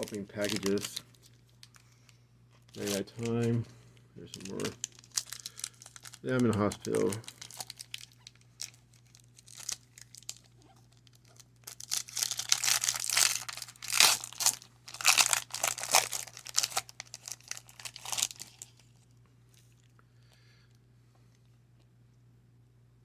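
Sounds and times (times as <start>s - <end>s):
card pack wrapper crinkling: 0.0s - 1.8s, 2.5s - 3.6s, 4.2s - 19.0s.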